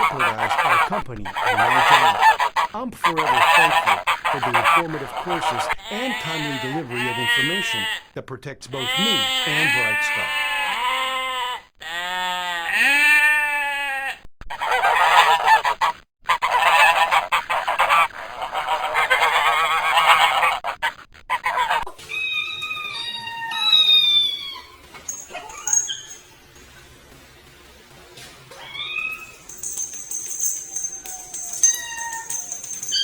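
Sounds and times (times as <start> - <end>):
waterfowl honking: 0.0 - 8.0, 8.8 - 10.8, 14.5 - 21.9
high falling chirping calls: 25.1 - 26.4.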